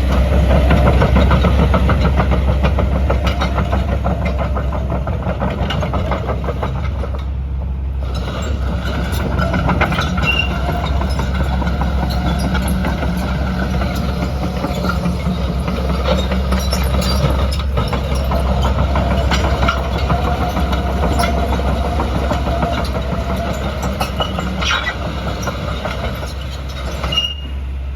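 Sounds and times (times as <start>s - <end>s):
excavator diesel engine running: 0.0s - 27.9s
high squeaks: 8.2s - 27.6s.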